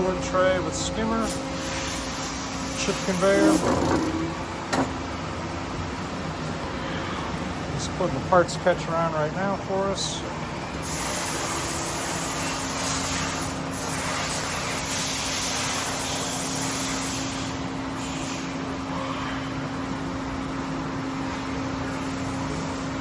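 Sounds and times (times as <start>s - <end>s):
machine hiss: 0.0s - 4.4s, 10.8s - 18.6s
machine hum: 0.0s - 10.9s.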